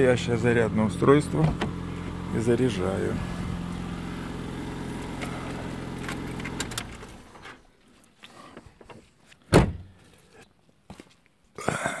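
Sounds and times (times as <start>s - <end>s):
car engine idling: 0.0s - 7.7s
loud thump: 9.5s - 9.9s.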